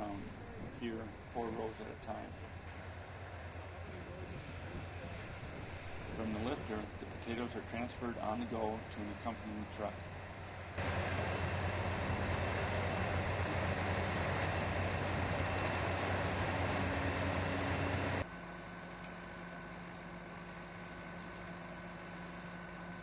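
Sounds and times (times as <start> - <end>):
steady engine hum: 0.0 - 23.0
loud mechanical din: 10.8 - 18.2.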